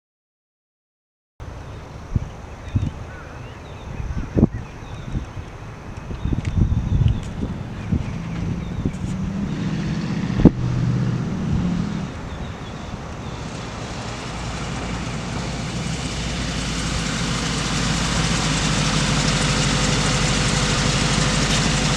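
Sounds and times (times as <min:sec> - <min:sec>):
car engine running: 0:05.7 - 0:21.9.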